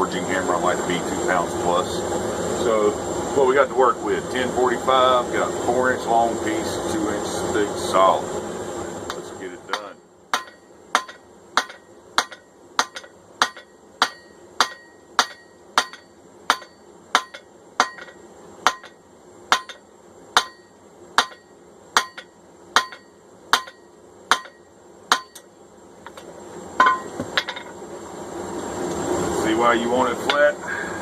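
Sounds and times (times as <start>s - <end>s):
hammer striking steel on anvil: 9.1s - 25.5s, 26.8s - 27.7s.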